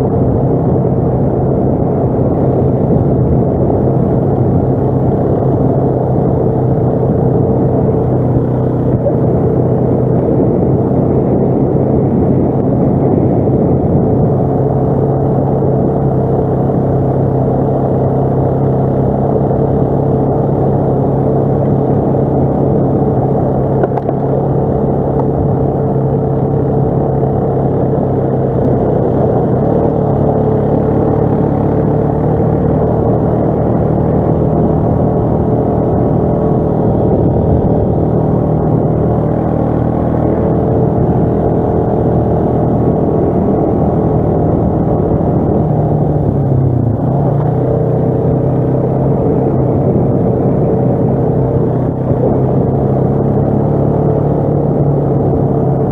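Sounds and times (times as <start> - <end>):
atv engine running steadily: 0.0 - 55.9.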